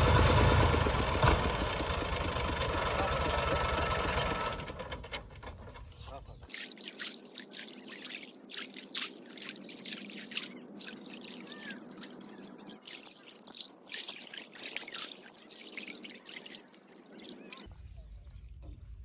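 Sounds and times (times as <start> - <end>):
small splashes and drips: 6.5 - 17.7
water splashing and trickling: 6.5 - 17.7.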